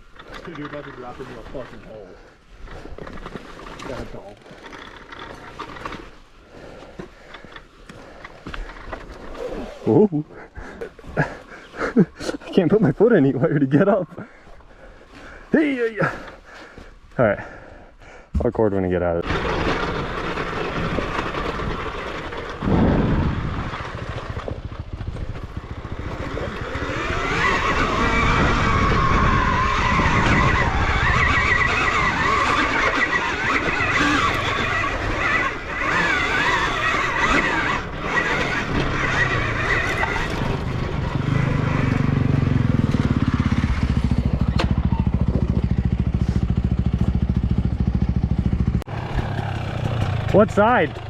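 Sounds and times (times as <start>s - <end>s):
dirt bike engine revving: 19.2s - 51.0s.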